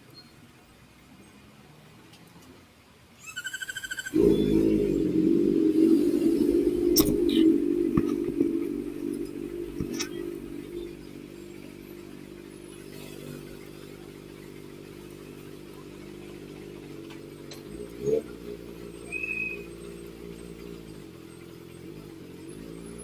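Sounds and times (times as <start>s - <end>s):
motorcycle engine idling: 3.8s - 23.0s
throttle blip: 4.2s - 18.2s.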